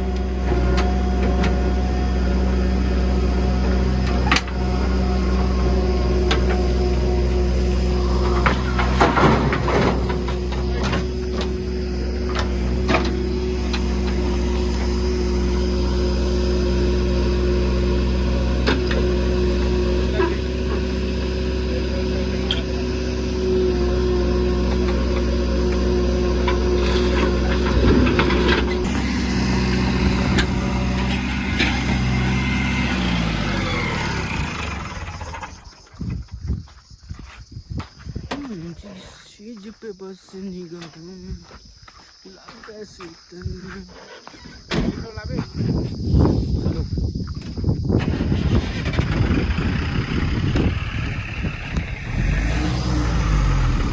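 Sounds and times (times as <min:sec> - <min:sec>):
earthmoving machine engine: 0:00.0 - 0:35.8, 0:48.0 - 0:53.9
sharp clanks and knocks: 0:08.2 - 0:11.6, 0:26.4 - 0:29.1.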